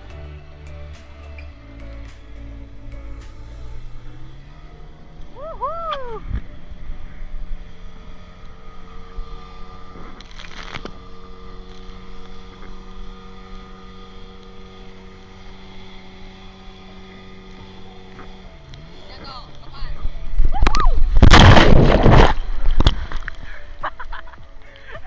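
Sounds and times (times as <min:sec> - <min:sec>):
motorboat engine running: 0:00.0 - 0:25.0
burst of noise: 0:21.2 - 0:22.4.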